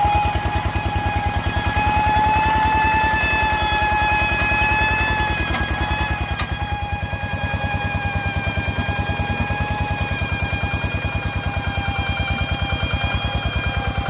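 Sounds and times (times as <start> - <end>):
high whine: 0.0 - 14.0
tractor diesel engine running: 0.0 - 14.0.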